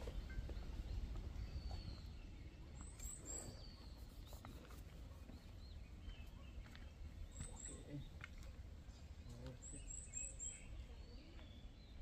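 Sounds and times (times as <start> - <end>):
bird chirps: 8.9 - 12.0.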